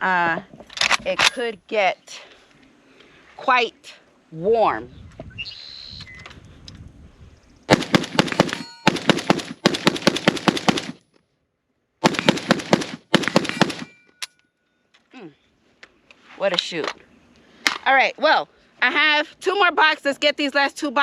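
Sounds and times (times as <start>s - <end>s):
rifle firing rapid shots: 7.7s - 11.0s, 12.0s - 13.9s.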